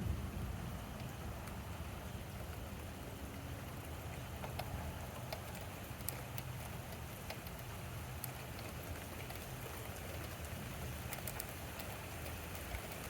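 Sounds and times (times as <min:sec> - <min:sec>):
low thunder rumble: 0:00.0 - 0:04.0
sharp ticks of raindrops: 0:00.0 - 0:13.0
steady rain falling: 0:00.0 - 0:13.0.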